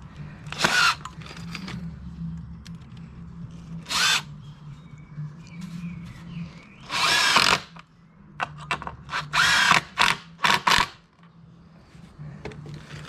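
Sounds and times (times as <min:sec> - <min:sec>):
drill driving screws into wood: 0:00.5 - 0:01.1, 0:03.9 - 0:04.3, 0:06.9 - 0:07.7, 0:09.1 - 0:11.0.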